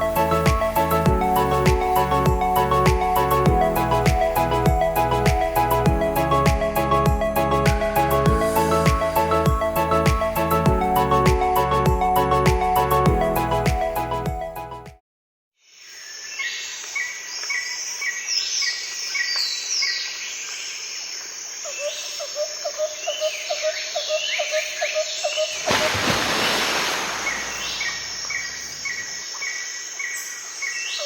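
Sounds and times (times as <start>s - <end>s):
outdoor hiss: 25.6s - 29.9s
birds chirping and whistling: 27.2s - 29.2s.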